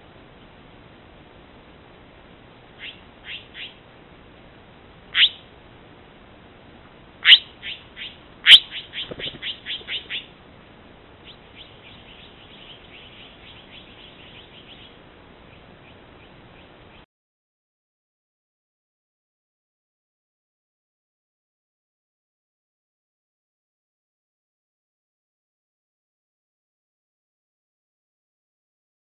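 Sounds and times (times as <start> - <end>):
sharp downward-sweeping bird calls: 2.8 - 3.8, 5.1 - 5.5, 7.2 - 10.3, 11.2 - 17.0.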